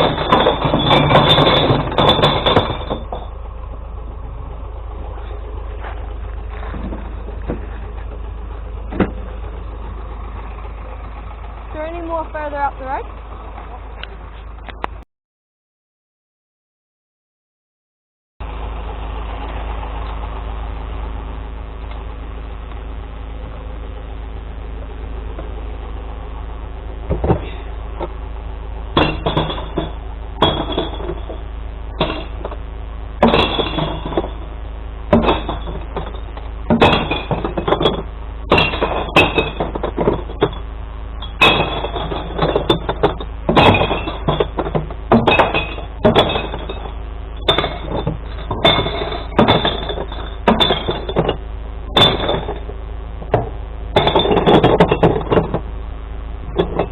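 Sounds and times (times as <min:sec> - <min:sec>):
glass bottles smashing: 0:00.0 - 0:03.3, 0:29.0 - 0:31.4, 0:32.0 - 0:32.6, 0:33.2 - 0:34.5, 0:35.1 - 0:55.6, 0:56.5 - 0:56.9
truck engine idling: 0:00.0 - 0:15.0, 0:18.4 - 0:56.9.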